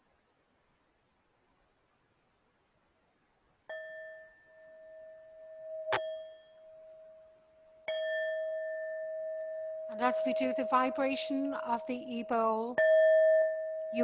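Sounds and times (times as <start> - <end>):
singing bowl ringing: 3.7 - 14.0
sharp metallic clang: 5.9 - 6.3.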